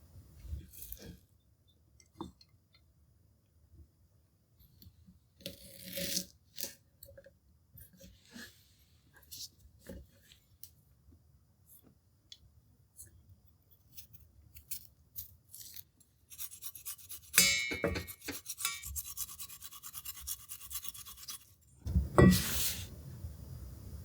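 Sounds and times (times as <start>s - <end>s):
food sizzling on grill: 22.2s - 23.0s.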